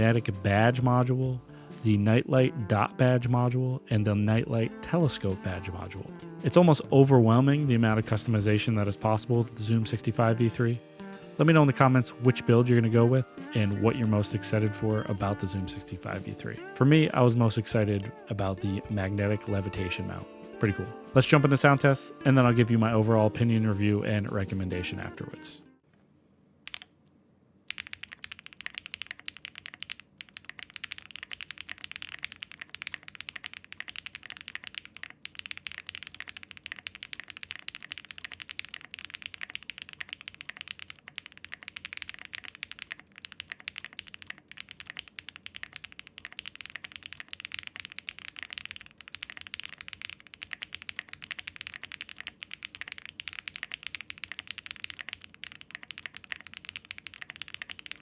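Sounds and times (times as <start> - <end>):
mechanical keyboard key clacks: 27.7 - 58.0.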